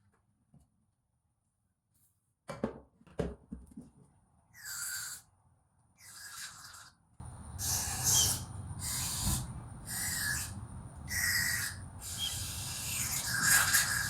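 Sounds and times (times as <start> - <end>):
drill spinning a brush: 7.5 - 14.0.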